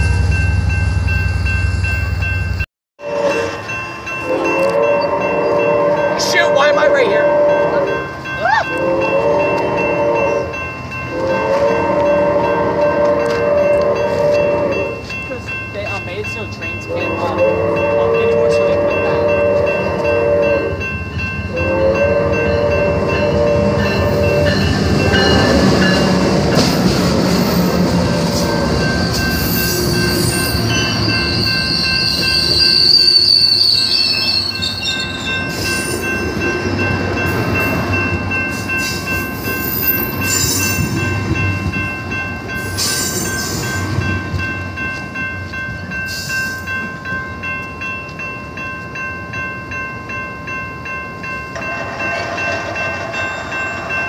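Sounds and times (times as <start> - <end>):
train horn blasts: 3.0 - 8.1, 8.7 - 15.1, 16.9 - 20.8, 21.5 - 24.8, 28.0 - 30.5
train wheels rumbling on rails: 3.5 - 54.0
high wheel squeal: 28.1 - 36.2.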